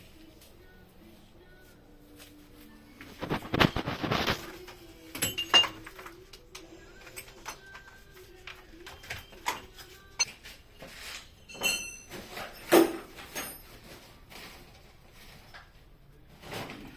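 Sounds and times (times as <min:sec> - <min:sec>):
hard objects knocking and clinking: 0:05.2 - 0:06.1.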